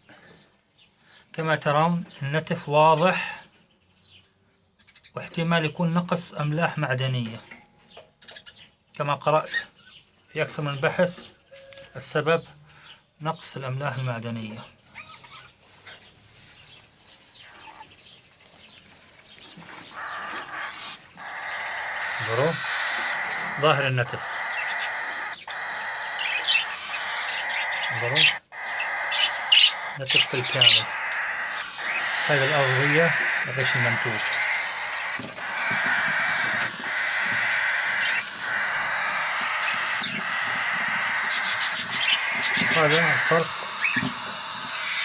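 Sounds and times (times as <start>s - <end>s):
bird chirps: 1.8s - 45.0s
raspy hissing bird call: 19.9s - 45.0s.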